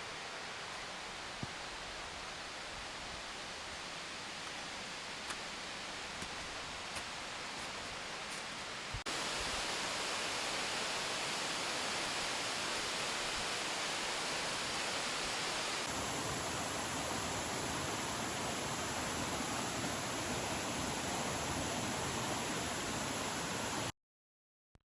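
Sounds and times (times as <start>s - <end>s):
waterfall rushing: 9.1s - 23.9s.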